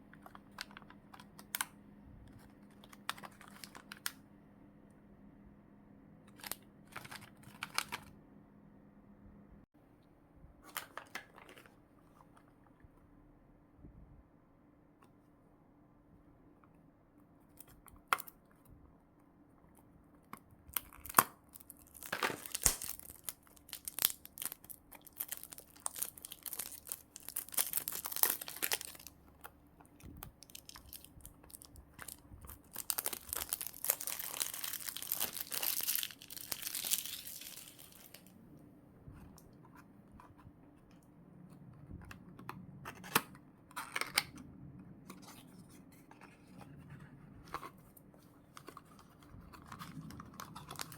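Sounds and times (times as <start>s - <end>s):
plastic packaging tearing and crinkling: 20.7s - 29.1s, 30.4s - 38.3s, 49.6s - 50.9s.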